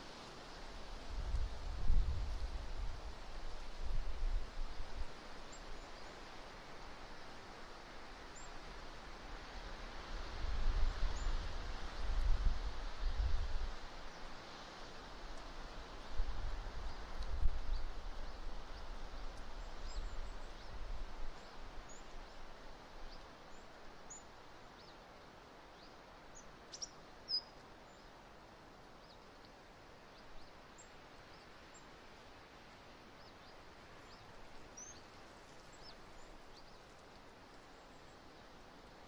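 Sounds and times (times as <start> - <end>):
small birds chirping: 25.7 - 28.1, 33.2 - 38.5.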